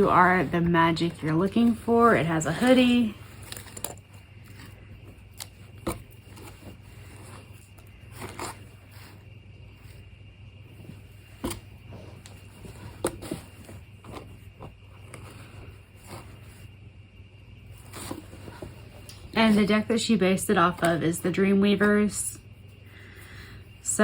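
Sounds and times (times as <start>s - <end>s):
rustling of items: 0.0s - 16.8s, 17.5s - 24.0s
low steady hum: 0.0s - 24.0s.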